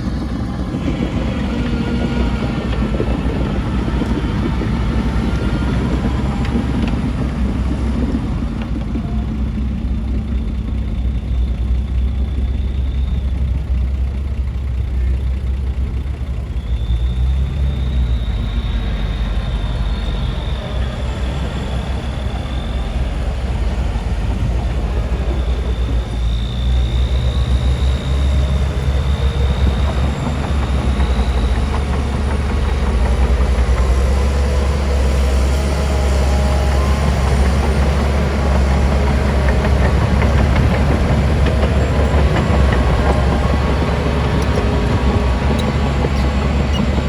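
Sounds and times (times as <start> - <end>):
heavy diesel machinery engine drone: 0.0 - 47.0
thin high whine: 16.6 - 47.0.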